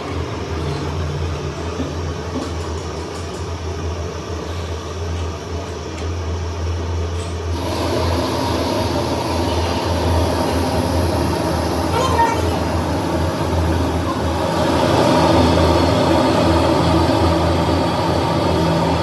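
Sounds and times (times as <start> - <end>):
engine humming: 7.5 - 19.0
hissing grinding noise: 7.5 - 19.0.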